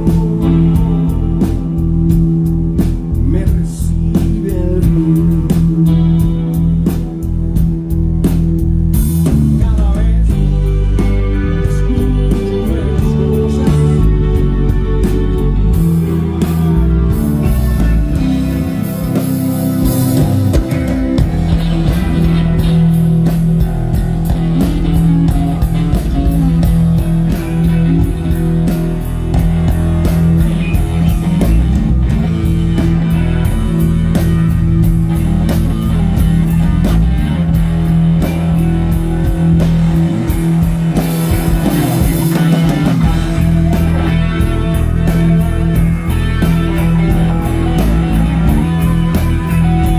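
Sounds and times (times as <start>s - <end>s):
drum kit beat: 0.0s - 49.9s
electric bass: 0.0s - 49.9s
electric guitar: 0.0s - 49.9s.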